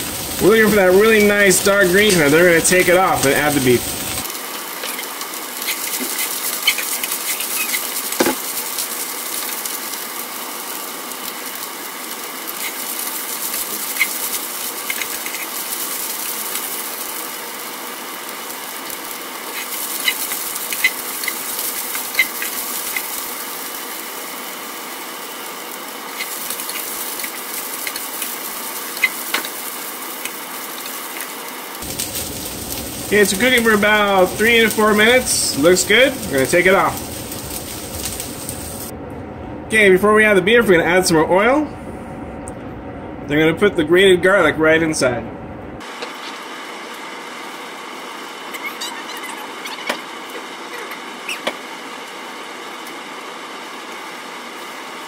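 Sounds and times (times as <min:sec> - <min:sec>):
vegetables sizzling in oil: 0:00.0 - 0:38.9, 0:45.8 - 0:55.0
spatula scraping a pan: 0:04.9 - 0:08.0.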